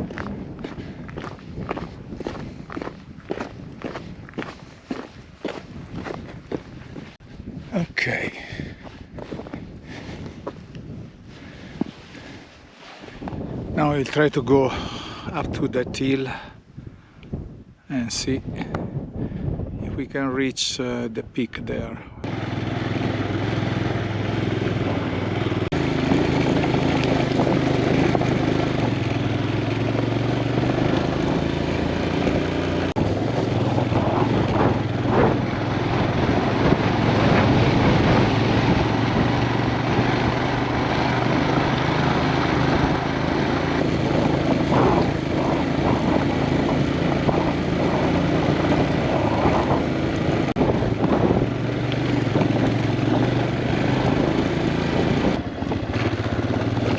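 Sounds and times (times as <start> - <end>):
motorcycle engine running: 0.0 - 7.2, 22.2 - 56.9
rushing wind noise: 0.0 - 56.9.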